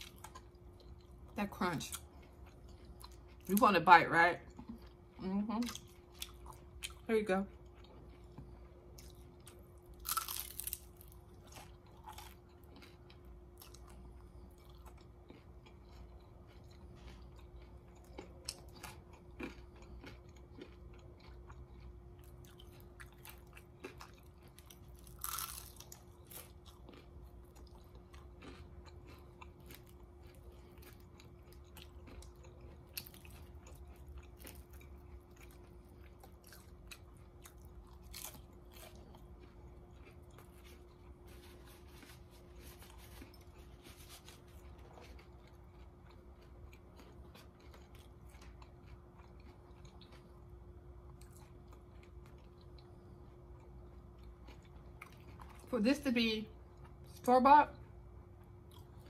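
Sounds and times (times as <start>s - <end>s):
crunchy chewing: 0.0s - 3.6s, 4.4s - 55.7s, 58.3s - 59.0s.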